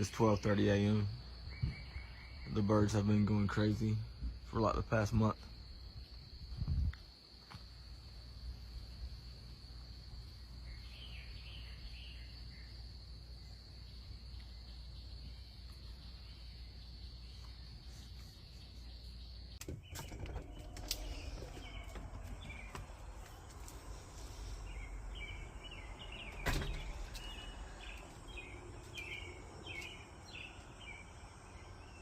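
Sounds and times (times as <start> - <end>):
birds chirping: 0.0 - 6.4, 9.4 - 32.0
high insect trill: 0.0 - 32.0.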